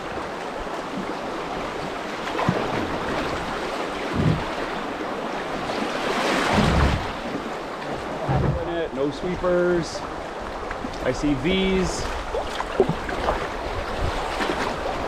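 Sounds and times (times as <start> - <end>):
low thumps: 4.1 - 4.6, 8.2 - 8.9.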